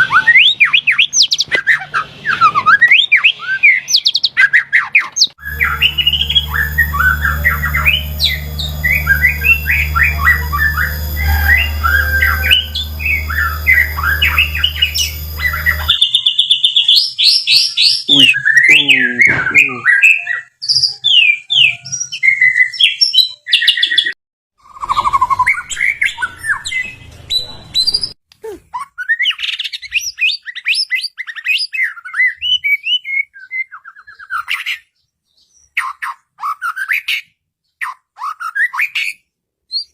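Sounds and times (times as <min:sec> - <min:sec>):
songbird singing whistled phrases: 0:00.0 - 0:24.0, 0:28.8 - 0:39.9
steady low hum: 0:05.4 - 0:16.0.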